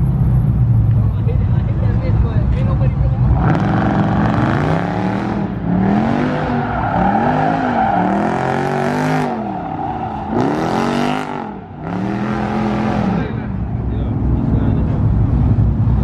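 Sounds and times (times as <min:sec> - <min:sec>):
car engine revving: 0:03.1 - 0:16.0
tyre screech: 0:06.4 - 0:11.9.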